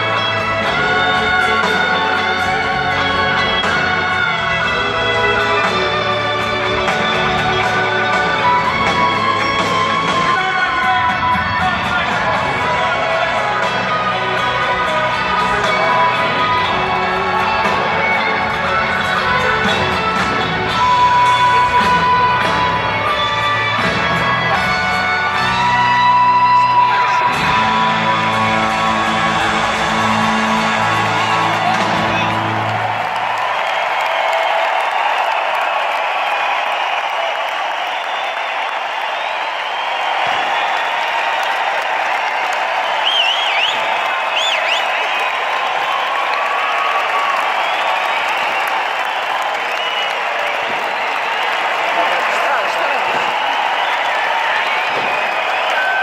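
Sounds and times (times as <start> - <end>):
live band music: 0.0 - 33.0
guitar: 0.0 - 33.4
bass: 0.0 - 33.7.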